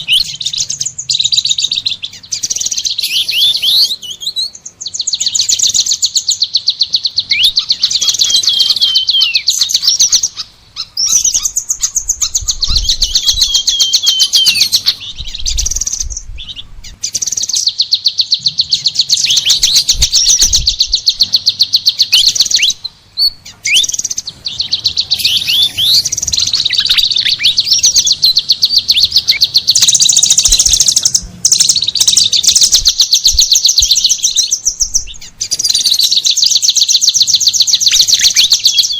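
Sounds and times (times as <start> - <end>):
songbird fast trill: 0.0 - 38.9.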